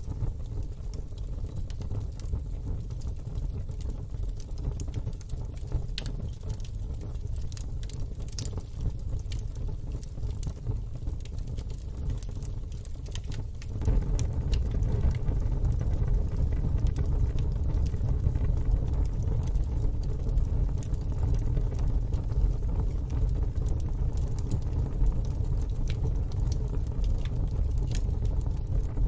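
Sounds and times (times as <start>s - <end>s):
wood fire crackling and popping: 0.0s - 29.0s
low rumble: 13.8s - 19.6s.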